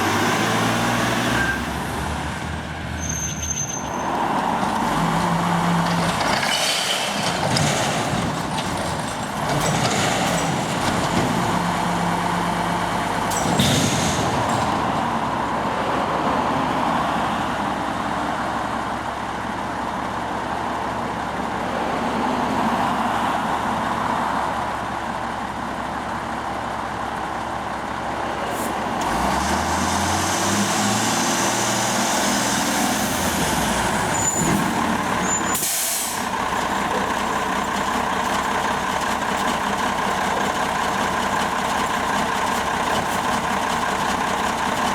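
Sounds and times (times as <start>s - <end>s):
truck engine running: 25.1s - 44.9s.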